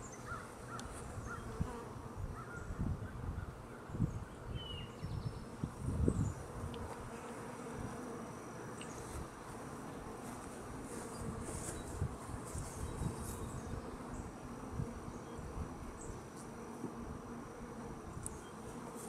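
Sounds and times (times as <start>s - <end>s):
honey bees buzzing: 0.0s - 19.0s.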